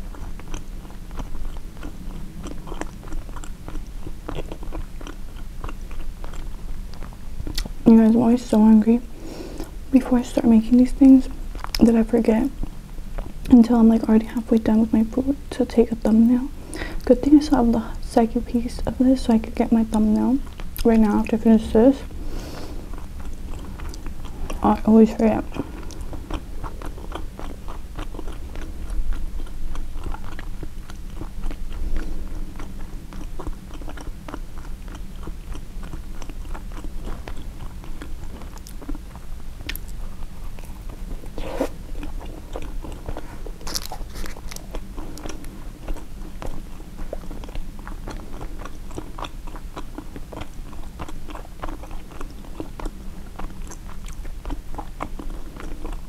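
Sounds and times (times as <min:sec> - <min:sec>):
chewing and biting sandwich: 0:00.0 - 0:07.8, 0:11.4 - 0:11.8, 0:12.5 - 0:14.1, 0:22.0 - 0:56.0
low steady hum: 0:00.0 - 0:56.0.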